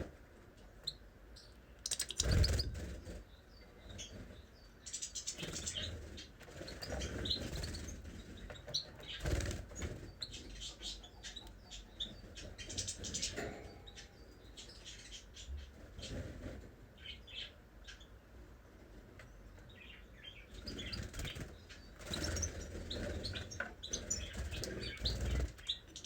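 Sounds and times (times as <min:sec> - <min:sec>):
cage birds chirping: 0:00.0 - 0:26.0
wings flapping: 0:01.9 - 0:03.2, 0:09.0 - 0:10.1, 0:20.8 - 0:25.7.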